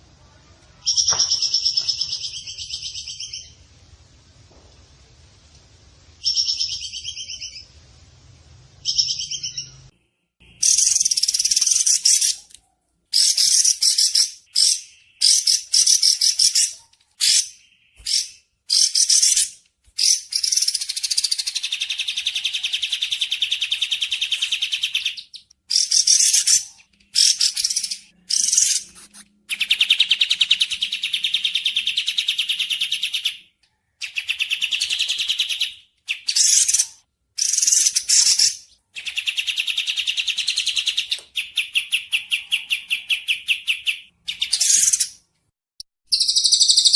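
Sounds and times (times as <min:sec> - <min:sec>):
bird song with rapid trills: 0:46.1 - 0:46.9.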